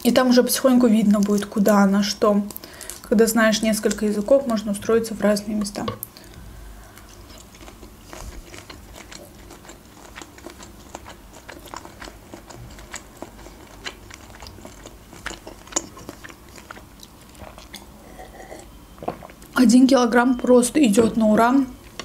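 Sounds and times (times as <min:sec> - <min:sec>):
person chewing shrimp: 0:06.1 - 0:19.5.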